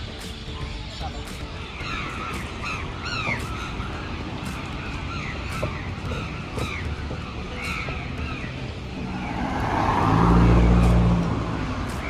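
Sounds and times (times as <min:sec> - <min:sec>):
crows cawing: 0:00.1 - 0:12.0
vehicle passing by: 0:02.4 - 0:12.0.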